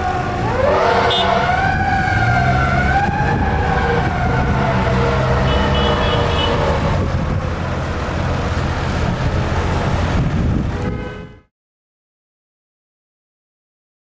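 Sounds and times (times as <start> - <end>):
fire engine siren falling: 0.0 - 10.4
truck engine rumble: 0.0 - 11.3
road noise: 0.0 - 11.5.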